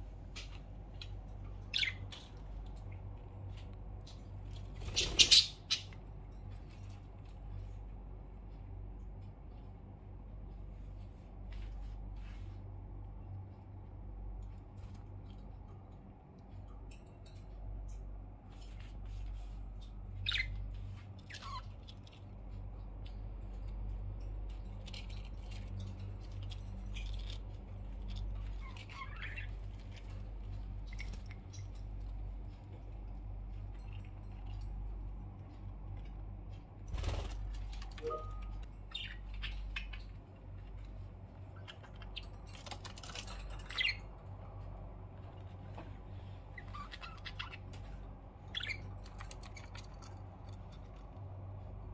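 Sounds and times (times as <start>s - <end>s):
low hum: 0.0s - 51.9s
budgerigars chirping: 4.9s - 6.0s, 38.1s - 40.1s, 46.6s - 47.7s, 48.5s - 49.6s.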